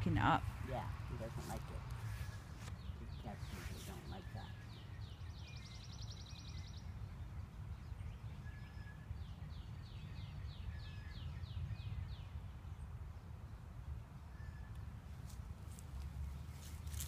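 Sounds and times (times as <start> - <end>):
small bird singing: 2.0 - 13.0.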